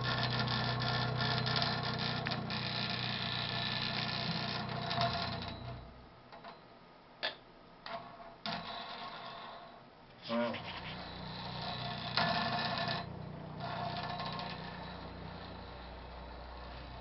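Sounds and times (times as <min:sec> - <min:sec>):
plumbing rattling buzz: 0:00.0 - 0:06.0, 0:10.2 - 0:17.0.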